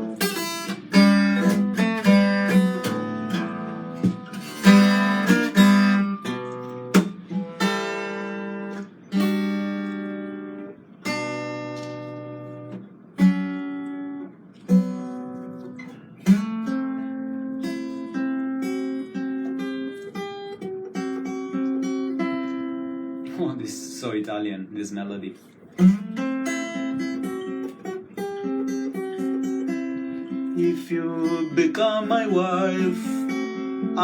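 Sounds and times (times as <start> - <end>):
acoustic guitar playing: 0.0 - 34.0.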